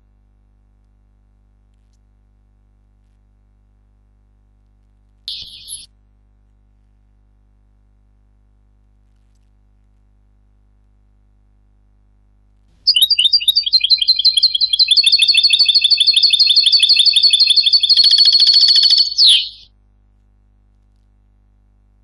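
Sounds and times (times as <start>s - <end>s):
goldfinch song: 5.3s - 5.9s, 12.9s - 19.7s.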